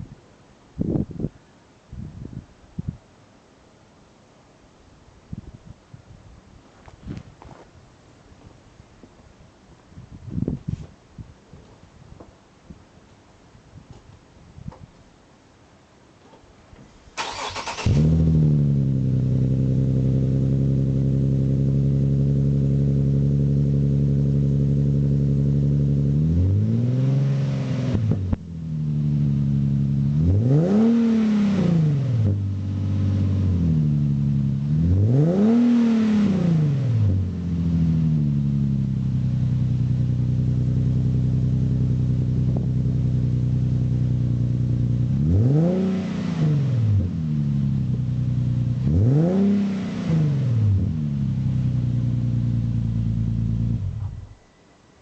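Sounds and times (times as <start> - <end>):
car engine starting and revving: 17.2 - 54.3.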